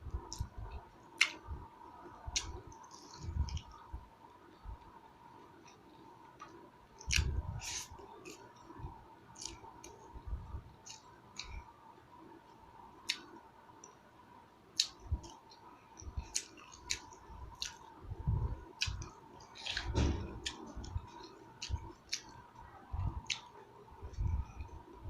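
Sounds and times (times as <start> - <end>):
person chewing food: 2.3 - 3.8, 5.6 - 8.7, 9.4 - 10.0, 14.8 - 17.9, 18.7 - 22.4.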